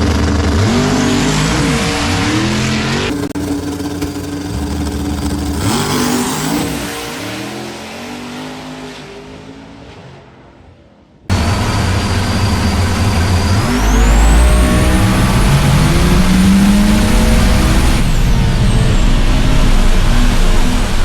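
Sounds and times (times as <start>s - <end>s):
high engine whine: 0.0s - 6.9s, 11.3s - 21.0s
racing engine revving: 0.0s - 9.8s, 11.3s - 21.0s.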